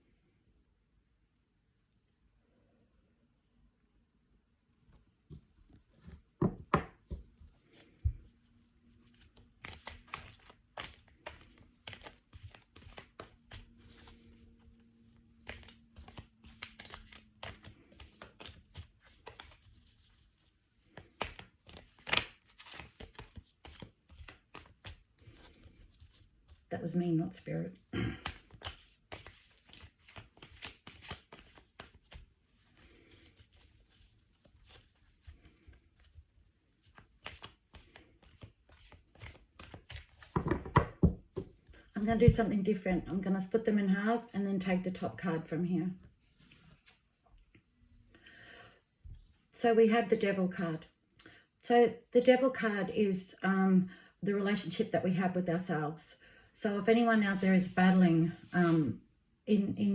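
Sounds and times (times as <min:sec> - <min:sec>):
cards being shuffled: 0:09.0 - 0:26.7, 0:28.2 - 0:42.4, 0:46.3 - 0:47.1.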